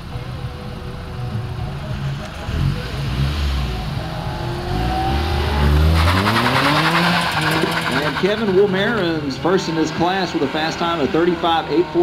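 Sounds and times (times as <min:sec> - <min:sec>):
car engine revving hard: 0:02.4 - 0:12.0.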